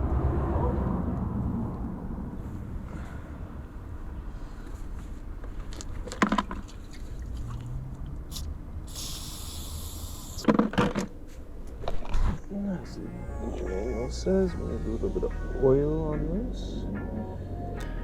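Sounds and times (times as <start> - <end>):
aerosol spray hiss: 8.3 - 10.4.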